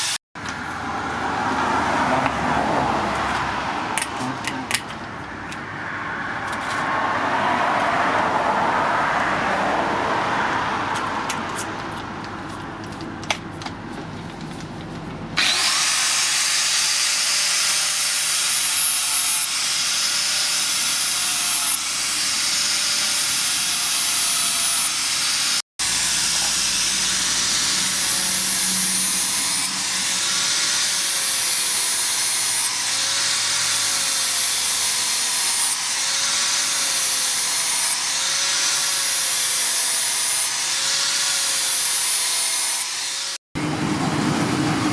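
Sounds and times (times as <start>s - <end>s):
power tool rasping: 15.4s - 43.4s.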